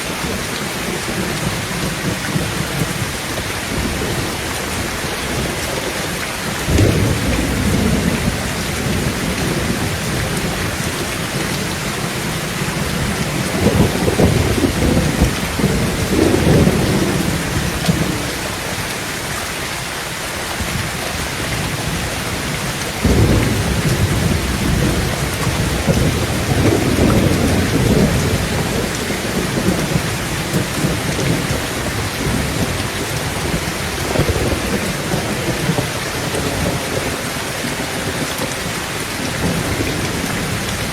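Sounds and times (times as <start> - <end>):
heavy rain on a tin roof: 0.0 - 40.9
thunder rolling: 6.6 - 18.6, 20.6 - 38.2.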